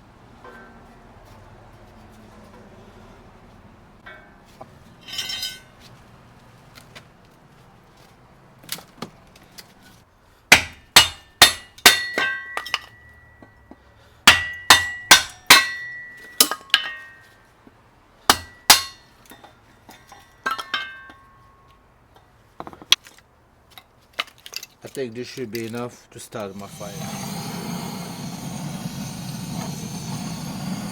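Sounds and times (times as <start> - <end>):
hatchet chopping kindling: 10.5 - 12.8, 14.3 - 16.0, 18.3 - 19.0.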